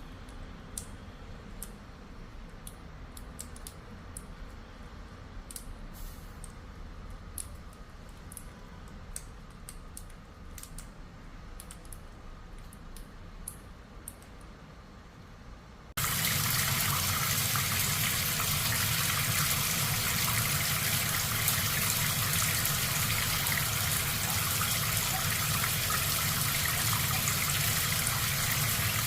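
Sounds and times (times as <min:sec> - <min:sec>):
faint low hum: 0:00.0 - 0:29.0
light clicks and taps: 0:05.4 - 0:05.7, 0:11.6 - 0:14.5.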